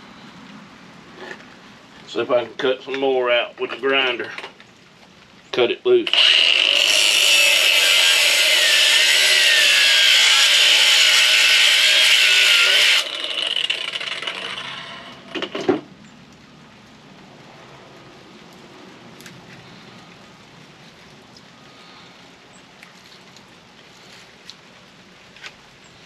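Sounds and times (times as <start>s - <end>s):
hand grinder whining and cutting: 6.1s - 15.4s.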